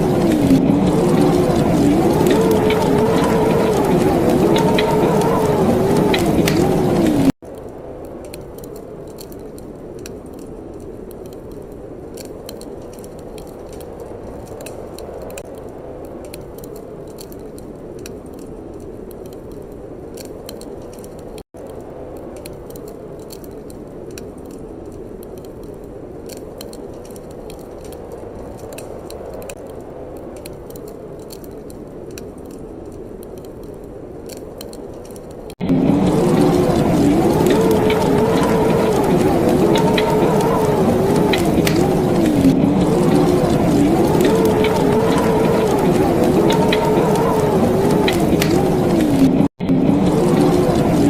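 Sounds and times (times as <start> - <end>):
steady soft rush: 0.0 - 20.1, 35.4 - 51.0
wood fire crackling and popping: 0.0 - 51.0.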